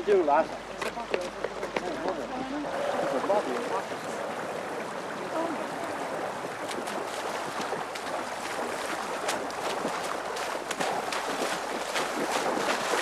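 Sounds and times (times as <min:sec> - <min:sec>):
river water flowing: 0:00.0 - 0:13.0
short splashes: 0:01.8 - 0:13.0.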